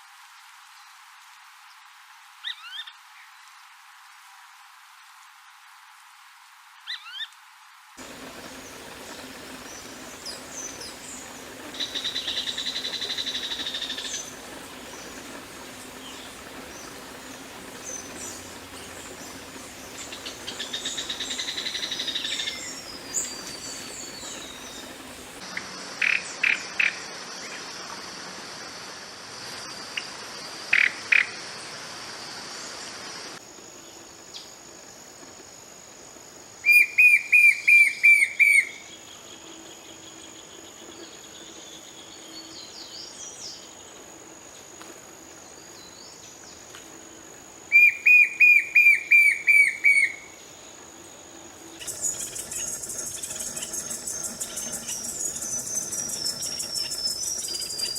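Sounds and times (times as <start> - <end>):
birds high chirps: 8.0 - 25.4, 51.8 - 57.9
bird fast trill: 51.8 - 57.9.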